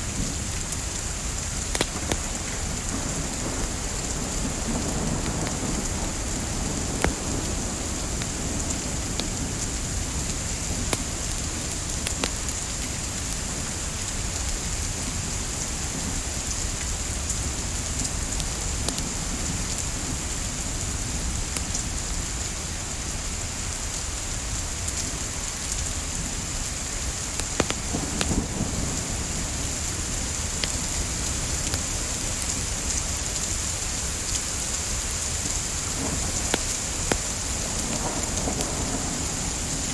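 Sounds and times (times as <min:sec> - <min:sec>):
wood fire crackling: 0:00.0 - 0:20.5, 0:24.5 - 0:39.9
soft rain: 0:00.0 - 0:39.9
sharp fire pops: 0:01.6 - 0:03.8, 0:04.6 - 0:09.8, 0:10.6 - 0:13.4, 0:27.2 - 0:28.5, 0:35.4 - 0:38.7.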